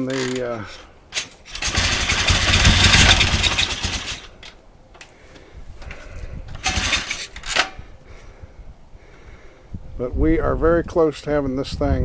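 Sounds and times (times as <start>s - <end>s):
motorcycle engine running loud: 1.5s - 4.5s, 6.5s - 7.2s.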